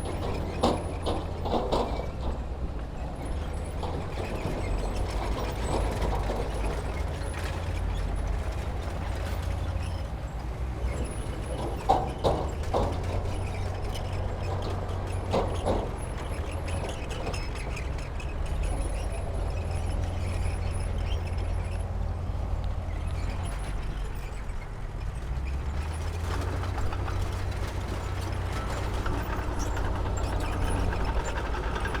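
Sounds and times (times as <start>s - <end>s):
metal clanking and rattling: 0.0s - 10.0s, 10.9s - 21.8s, 25.1s - 32.0s
diesel engine running: 0.0s - 32.0s.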